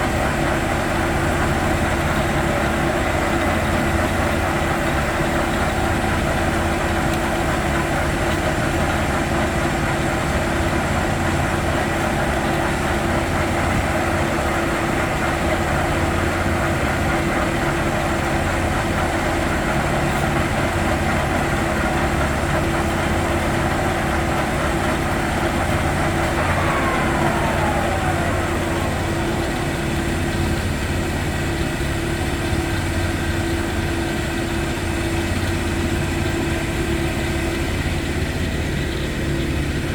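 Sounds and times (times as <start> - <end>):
lathe running with whine: 21.4 - 33.8.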